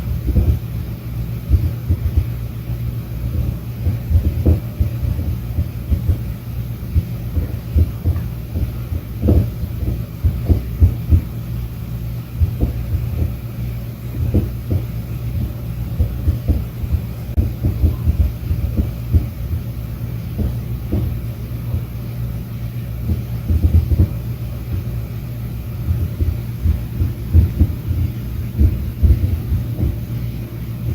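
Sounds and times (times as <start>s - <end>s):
steady low hum: 0.0s - 30.9s
muffled tapping and knocking: 3.3s - 6.3s, 7.0s - 11.3s, 12.4s - 13.4s, 14.2s - 19.6s, 20.3s - 21.9s, 23.1s - 24.9s, 25.9s - 30.1s.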